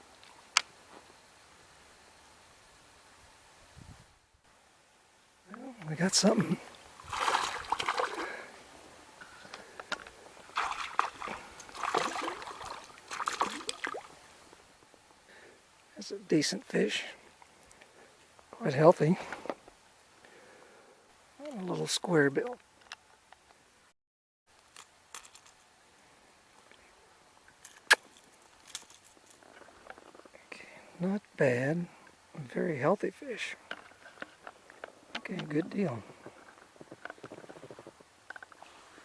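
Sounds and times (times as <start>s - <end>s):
water sloshing: 6.6s - 8.6s, 10.4s - 14.3s
fish splashing at the surface: 7.0s - 8.6s, 10.5s - 14.2s
light handling clicks and rattles: 24.7s - 25.7s, 27.6s - 30.2s.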